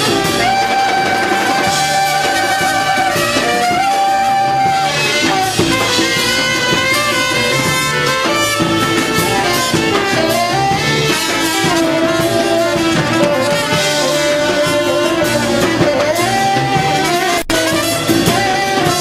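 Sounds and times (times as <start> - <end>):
drums: 0.0 - 19.0
guitar: 0.0 - 19.0
horns holding long notes: 0.0 - 19.0.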